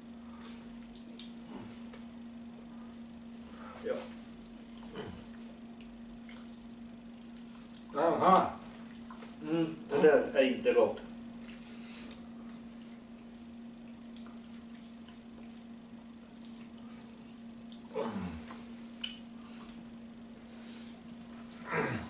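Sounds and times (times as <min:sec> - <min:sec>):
wet chewing and lip-smacking: 0:00.8 - 0:02.1, 0:04.2 - 0:08.0, 0:08.7 - 0:09.4, 0:11.4 - 0:19.8.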